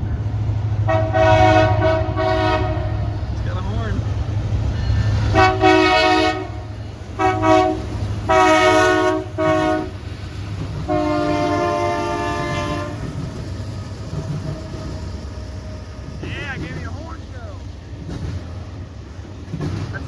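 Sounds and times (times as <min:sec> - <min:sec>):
train rumbling: 0:00.0 - 0:20.0
locomotive horn blasts: 0:00.8 - 0:03.2, 0:05.2 - 0:10.0, 0:10.9 - 0:13.2.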